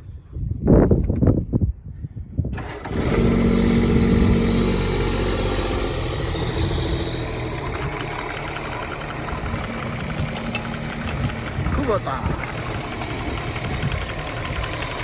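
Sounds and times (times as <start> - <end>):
mini excavator diesel engine running: 2.6 - 15.0.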